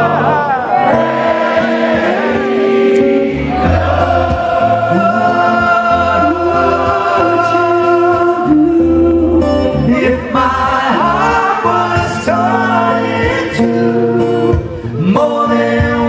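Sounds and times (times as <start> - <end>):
audience singing together: 0.0 - 8.5, 10.0 - 14.2
band accompaniment: 1.0 - 8.4.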